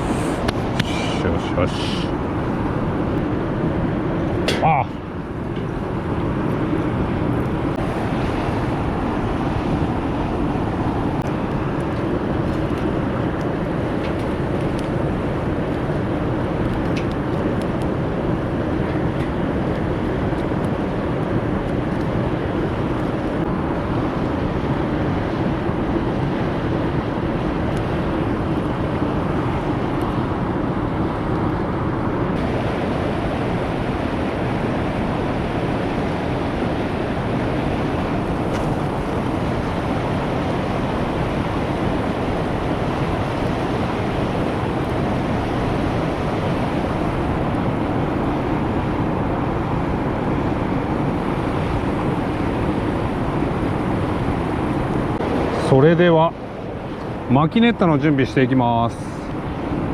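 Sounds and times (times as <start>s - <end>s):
fire crackling: 0.0s - 31.0s, 32.0s - 57.4s
fire rushing: 0.0s - 59.9s.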